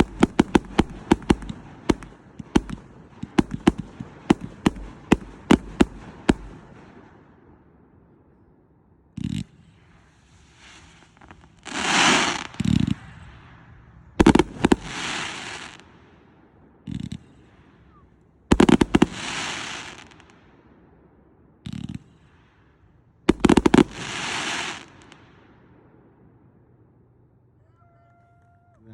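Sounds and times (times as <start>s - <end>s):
firework crackling: 0.0s - 7.1s, 9.2s - 16.2s, 16.9s - 20.7s, 21.7s - 25.6s
sharp loud firework reports: 9.2s - 20.6s, 21.6s - 25.6s.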